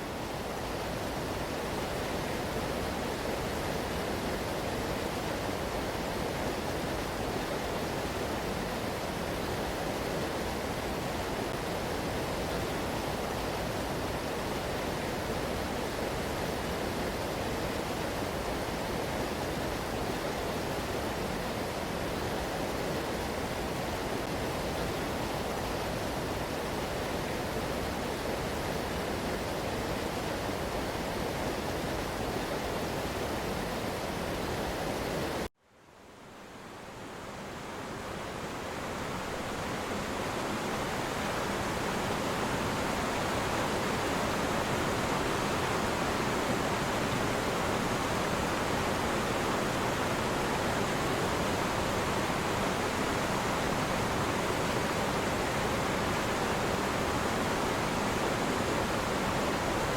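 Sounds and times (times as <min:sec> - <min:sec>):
floodwater rushing: 0:37.5 - 0:59.9.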